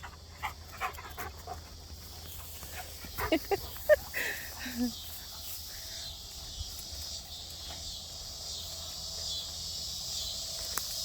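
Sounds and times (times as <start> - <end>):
cicadas droning: 0.0 - 11.0.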